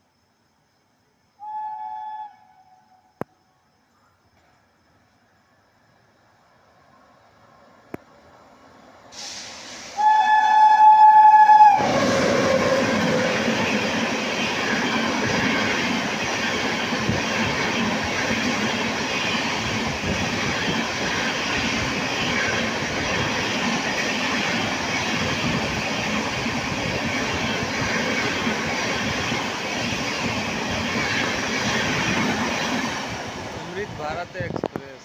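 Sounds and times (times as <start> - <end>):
train rushing past: 6.6 - 35.0
train horn: 9.9 - 13.6.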